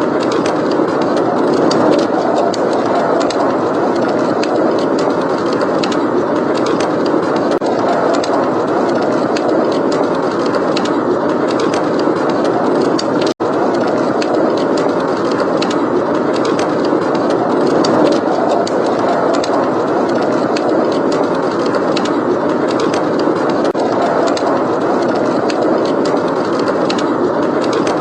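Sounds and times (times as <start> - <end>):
wind blowing: 0.0 - 28.0
fireplace crackling: 0.1 - 27.8.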